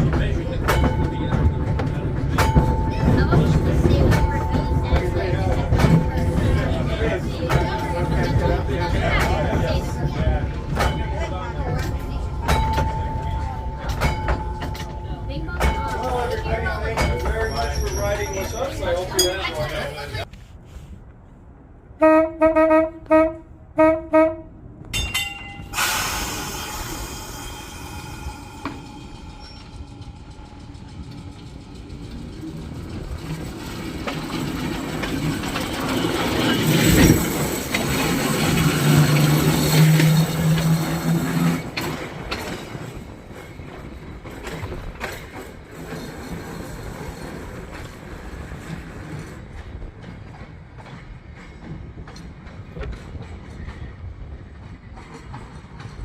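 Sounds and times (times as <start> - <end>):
trolley car on rails: 0.0 - 56.0.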